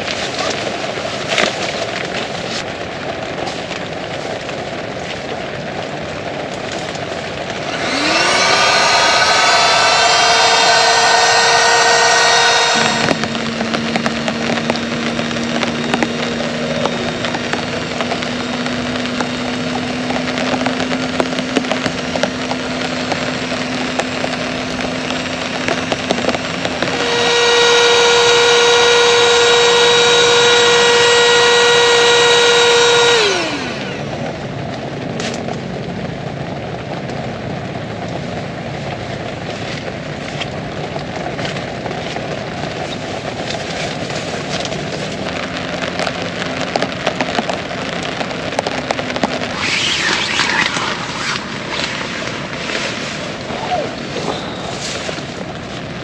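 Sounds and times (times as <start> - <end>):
rain hissing: 0.0 - 56.0
small motor whining: 7.6 - 34.3, 49.2 - 55.1.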